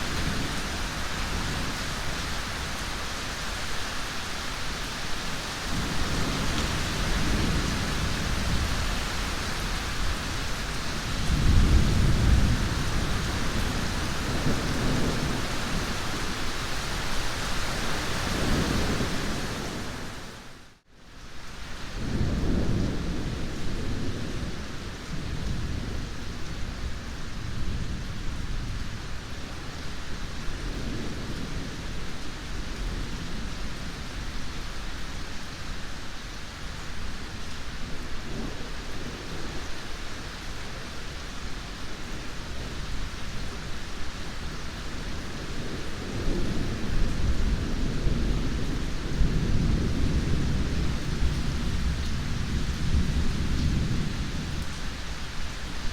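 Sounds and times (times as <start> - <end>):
heavy rain: 0.0 - 55.9
rolling thunder: 5.7 - 16.4.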